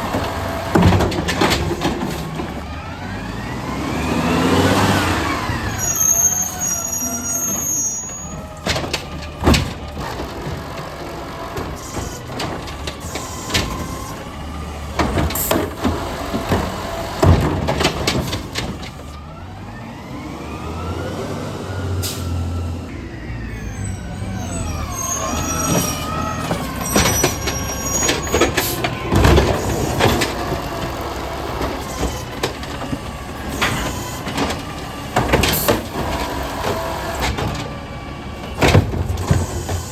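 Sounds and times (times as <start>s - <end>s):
bin bangs and clanks: 0.0s - 2.7s, 7.5s - 14.2s, 14.8s - 19.0s, 25.3s - 37.8s, 38.5s - 39.9s
garbage truck engine revving: 0.0s - 39.9s.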